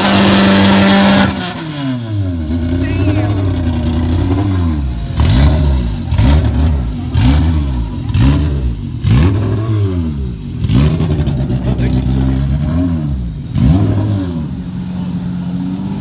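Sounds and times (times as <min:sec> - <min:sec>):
car engine throttle blips: 0:00.0 - 0:16.0.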